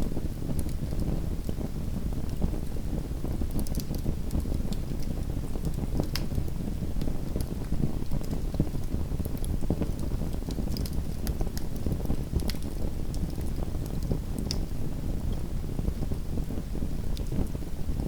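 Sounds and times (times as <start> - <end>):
fire crackling and popping: 3.6 - 14.7.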